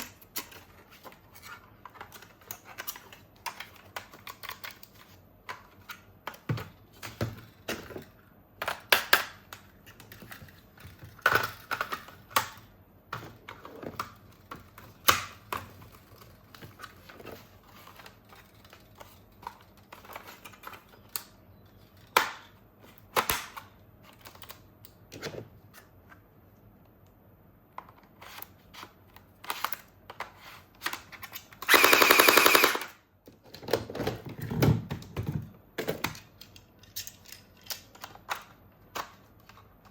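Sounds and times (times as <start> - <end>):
plastic toy parts clicking: 30.9 - 32.9, 36.0 - 39.9
electronic machine-gun sound effect: 31.7 - 32.9.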